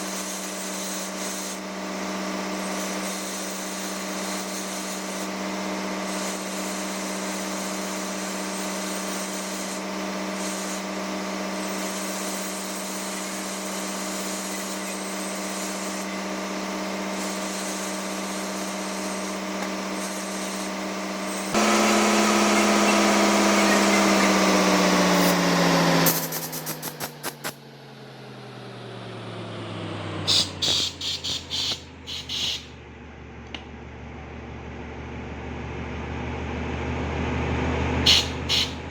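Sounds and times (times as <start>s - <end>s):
machine humming: 14.6s - 27.6s, 29.1s - 34.3s.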